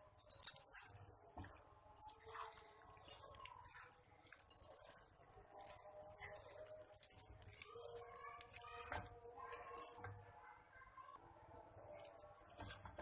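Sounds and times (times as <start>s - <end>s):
utensil clinking and scraping a pan: 0.2s - 10.1s.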